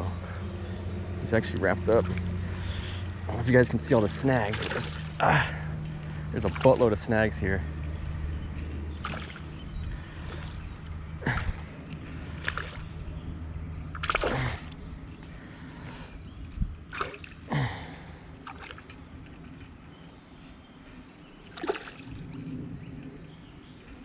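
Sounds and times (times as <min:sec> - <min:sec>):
fish splashing in water: 0:04.1 - 0:05.5, 0:06.2 - 0:07.1, 0:08.9 - 0:13.1, 0:13.8 - 0:15.2, 0:16.9 - 0:19.1, 0:21.4 - 0:22.4.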